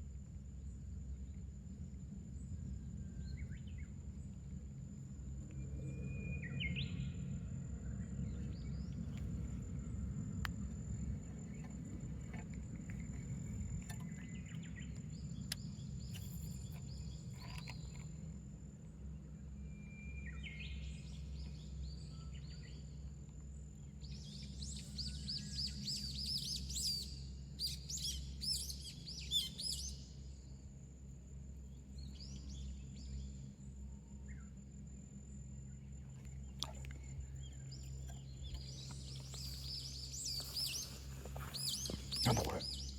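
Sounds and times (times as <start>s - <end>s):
steady low rumble: 0.0s - 26.4s, 30.5s - 42.9s
birds singing: 5.6s - 18.3s, 19.1s - 23.1s, 23.8s - 30.6s, 31.7s - 34.5s, 35.7s - 42.9s.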